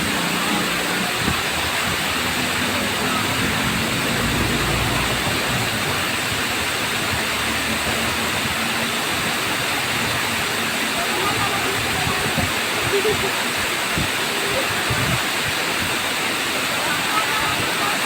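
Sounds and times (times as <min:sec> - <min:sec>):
vehicle engine hum: 0:00.0 - 0:12.2
waterfall rushing: 0:00.0 - 0:18.0.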